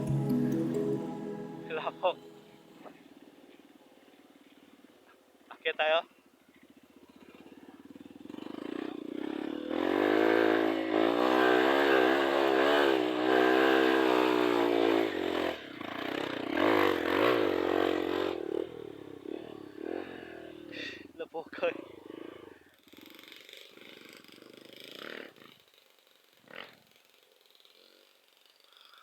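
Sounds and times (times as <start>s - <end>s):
motorcycle engine revving: 7.8s - 20.7s.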